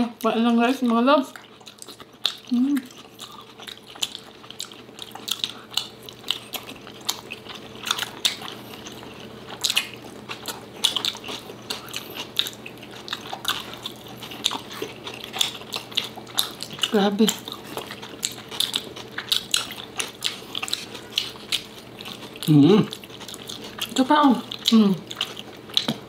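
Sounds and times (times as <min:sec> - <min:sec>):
people chewing: 0:00.2 - 0:26.0
wet lip smacks and mouth clicks: 0:25.8 - 0:26.0.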